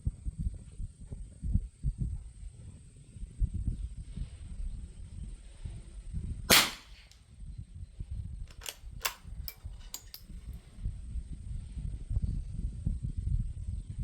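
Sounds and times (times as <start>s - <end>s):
wind rumble on microphone: 0.0s - 14.0s
rifle bolt metallic clicks: 6.5s - 6.9s, 8.5s - 10.3s
rifle shot with echo: 6.5s - 7.1s.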